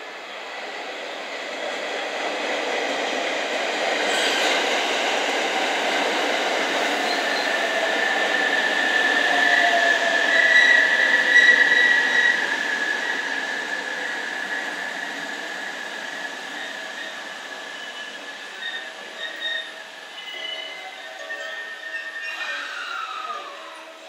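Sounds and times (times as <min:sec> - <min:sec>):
train wheels rushing on rail: 0:00.0 - 0:24.0
high brake squeal: 0:07.0 - 0:07.6, 0:16.1 - 0:24.0.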